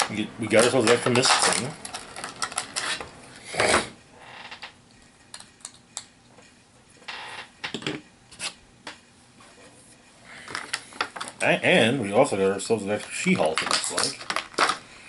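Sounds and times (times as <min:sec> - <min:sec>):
packaging rustling: 0:00.6 - 0:03.0, 0:12.9 - 0:14.8
plastic pieces clicking: 0:00.6 - 0:03.0, 0:13.0 - 0:14.8.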